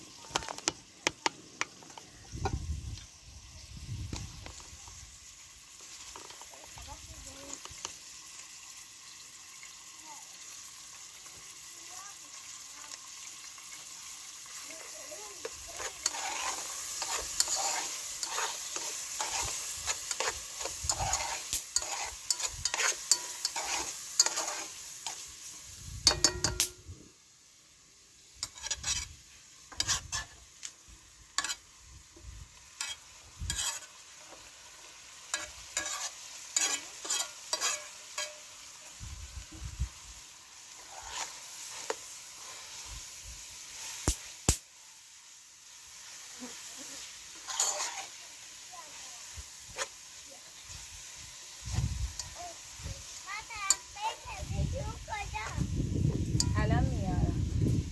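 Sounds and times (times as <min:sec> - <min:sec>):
food sizzling in a frying pan: 0:00.0 - 0:57.9
spoon stirring and scraping pan: 0:05.8 - 0:08.1, 0:12.9 - 0:26.8, 0:28.4 - 0:44.3, 0:45.9 - 0:55.6.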